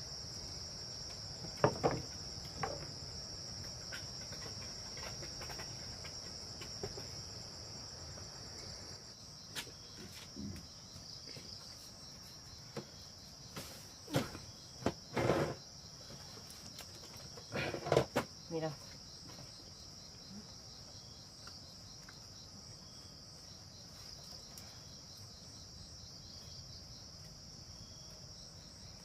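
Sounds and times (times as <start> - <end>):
insects chirring: 0.0 - 29.0
short knocks: 1.5 - 2.9.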